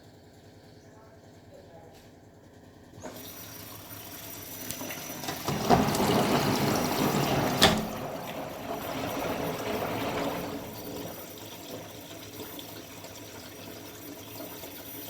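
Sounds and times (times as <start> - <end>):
water sloshing in washing machine: 3.0 - 15.0.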